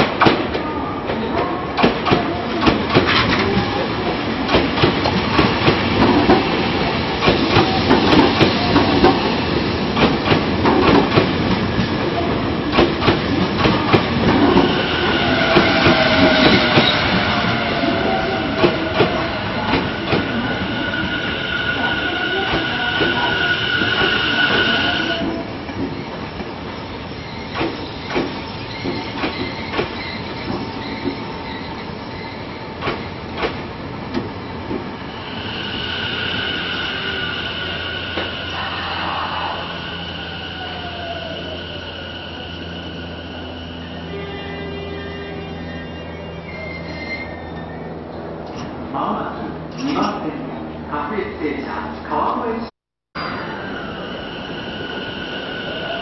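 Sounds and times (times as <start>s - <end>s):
train rumble: 0.0s - 52.4s
high wheel squeal: 14.6s - 32.6s, 35.0s - 48.3s, 53.2s - 56.0s
train wheels clattering: 27.3s - 34.9s.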